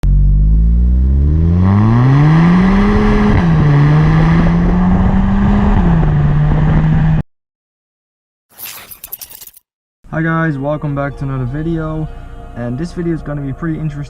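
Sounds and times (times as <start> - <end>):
car engine accelerating hard: 0.0 - 7.2.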